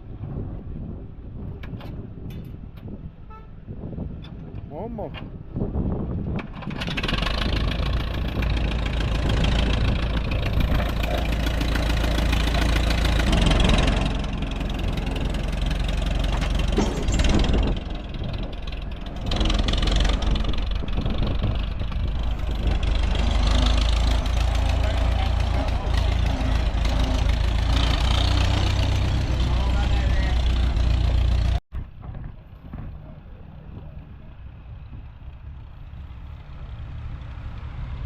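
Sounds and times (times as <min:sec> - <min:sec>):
tractor engine running: 0:04.1 - 0:38.0.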